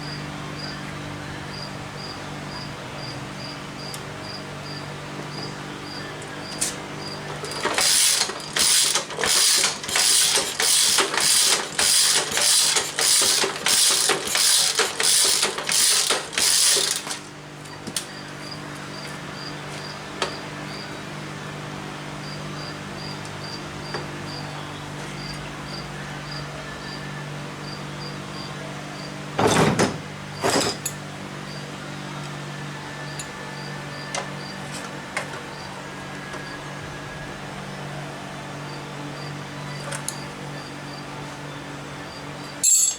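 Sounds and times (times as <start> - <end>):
crickets chirping: 1.5 - 7.6, 18.2 - 21.0, 22.2 - 24.6, 25.2 - 29.2, 33.6 - 34.6.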